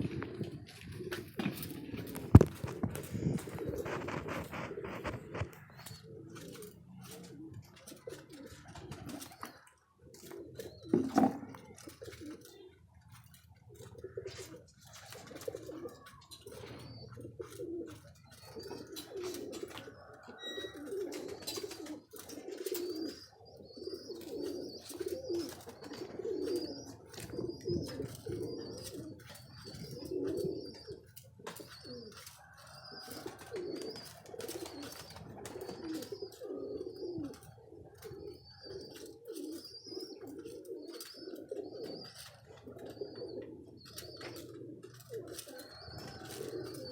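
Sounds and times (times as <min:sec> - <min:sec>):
pigeons cooing: 0:00.0 - 0:46.9.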